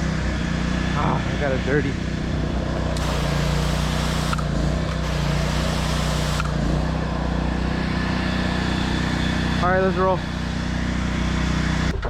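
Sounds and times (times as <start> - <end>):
pressure washer engine running: 0.0 - 11.9
high-pressure water spray hissing: 3.0 - 6.8.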